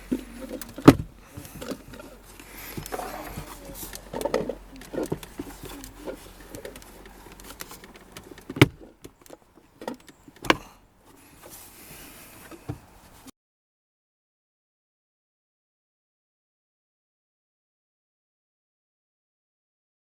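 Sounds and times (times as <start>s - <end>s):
sharp plastic knocks: 0.0s - 10.8s
light plastic clicks and rustling: 0.0s - 13.3s.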